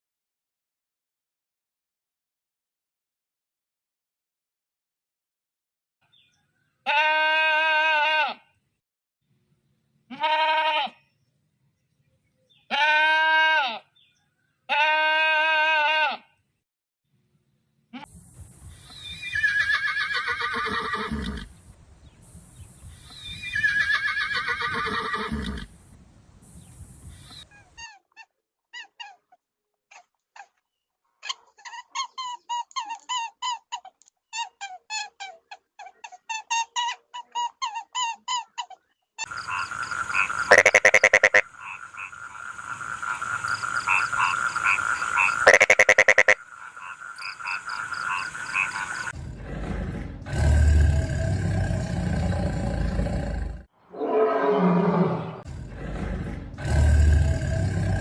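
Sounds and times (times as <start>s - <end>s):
horse whinnying: 19.0s - 21.5s, 23.3s - 25.7s, 53.9s - 55.5s
high-pitched animal chorus: 39.2s - 49.2s
rapid short animal calls: 40.2s - 41.4s, 45.4s - 46.9s.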